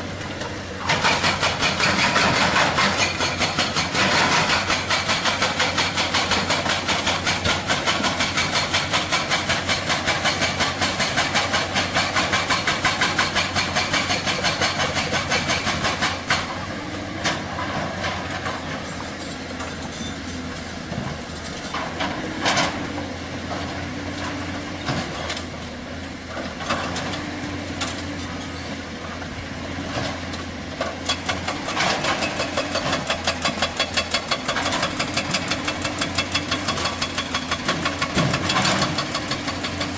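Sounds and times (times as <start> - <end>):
hydraulic rock breaker hammering: 0.4 - 19.5, 30.2 - 39.9.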